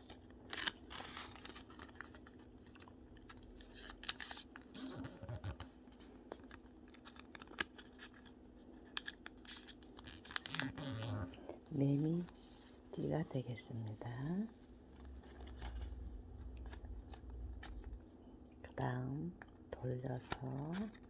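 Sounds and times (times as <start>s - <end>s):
paper rustling and crinkling: 0.0s - 18.2s, 19.8s - 21.0s
steady low hum: 9.7s - 21.0s.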